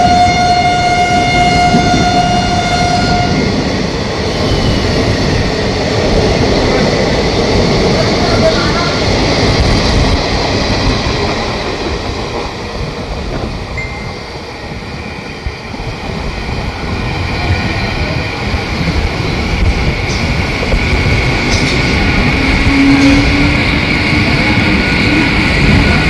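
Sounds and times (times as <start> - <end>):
train wheels rumbling on rails: 0.0 - 26.0
high steady tone: 13.8 - 15.2.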